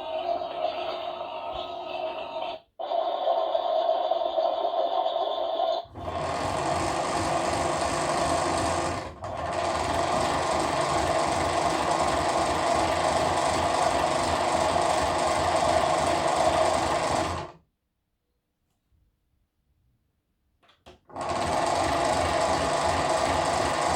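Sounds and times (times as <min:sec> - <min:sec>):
toy washing machine beeping: 0:00.0 - 0:17.4.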